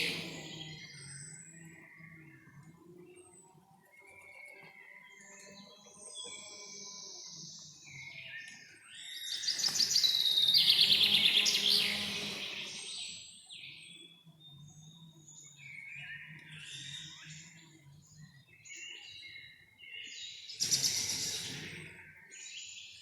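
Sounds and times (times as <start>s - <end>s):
rapid trilling birdsong: 0.0s - 2.4s, 9.0s - 14.1s, 20.3s - 23.0s
birds singing and calling: 0.0s - 23.0s.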